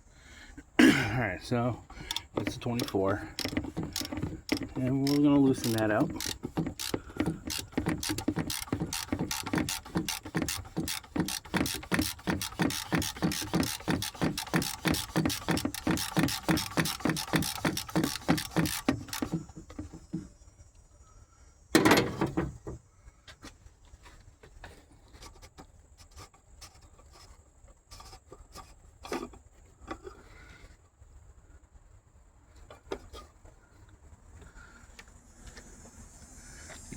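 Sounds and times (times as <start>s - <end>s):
hand ratchet clicking: 2.0s - 19.8s.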